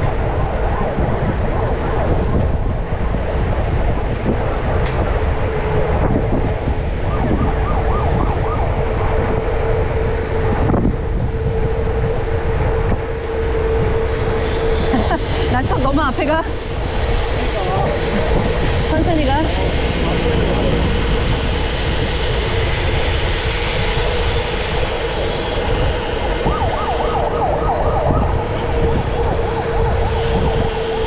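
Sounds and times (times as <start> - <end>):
wind rumbling on microphone: 0.0 - 31.0
steady tone: 8.7 - 31.0.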